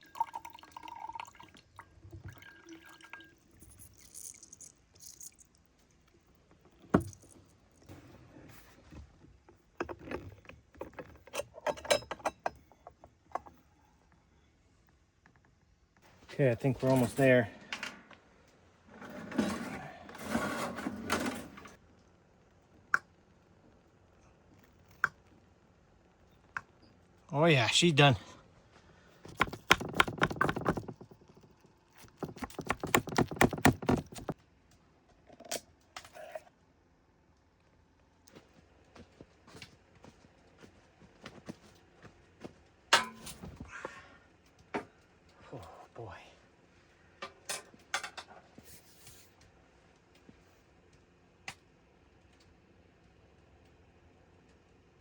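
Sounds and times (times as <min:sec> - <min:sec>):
cookware and utensils clinking: 0:11.3 - 0:12.9.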